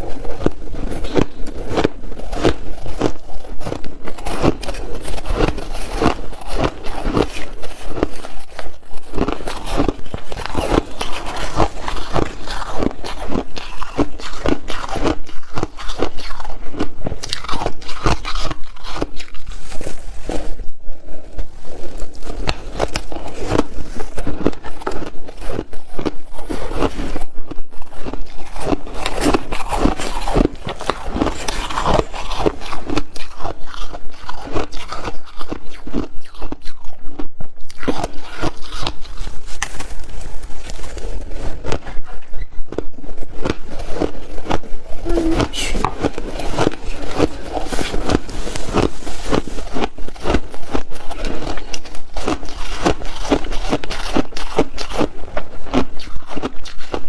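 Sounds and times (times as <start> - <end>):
person chewing ice: 0.0 - 57.0.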